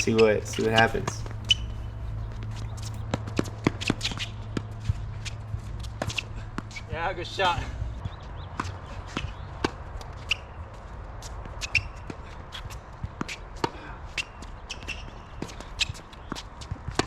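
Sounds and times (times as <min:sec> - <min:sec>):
footsteps: 0:00.0 - 0:06.8
tennis ball bouncing: 0:00.0 - 0:06.8, 0:11.5 - 0:17.0
shoes squeaking on court: 0:00.0 - 0:17.0.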